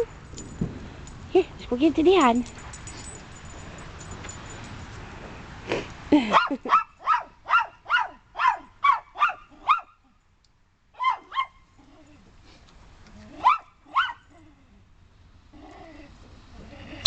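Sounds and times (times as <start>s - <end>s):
dog barking in high yips: 6.3s - 10.0s, 11.0s - 11.6s, 13.4s - 14.3s.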